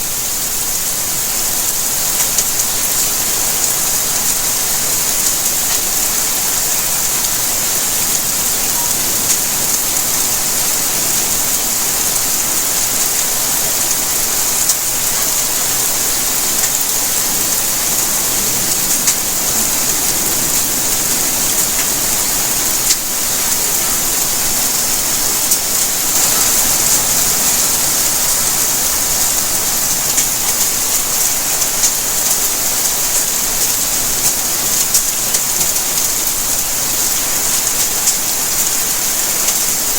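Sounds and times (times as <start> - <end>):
steady rainfall hiss: 0.0 - 39.9.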